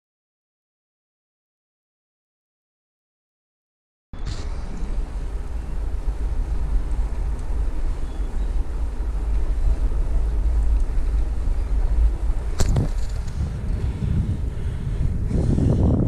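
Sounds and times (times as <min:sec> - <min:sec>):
faint road noise: 0:04.2 - 0:16.0
wind rumble on microphone: 0:04.2 - 0:16.0.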